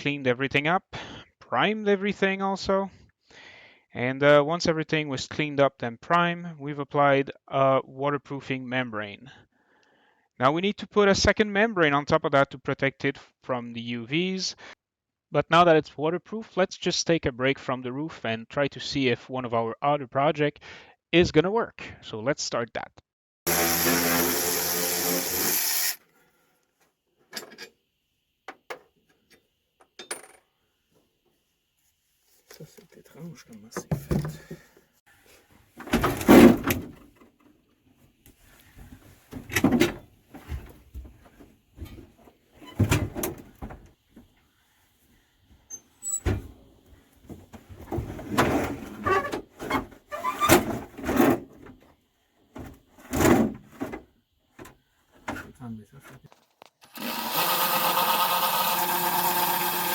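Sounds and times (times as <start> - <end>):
loud motor with hiss: 23.5 - 26.0.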